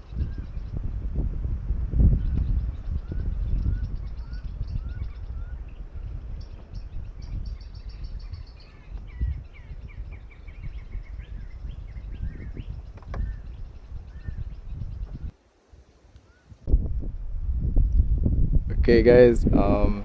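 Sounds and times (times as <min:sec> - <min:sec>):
wild birds calling: 0:02.2 - 0:15.3
steady low rumbling noise: 0:16.7 - 0:20.0.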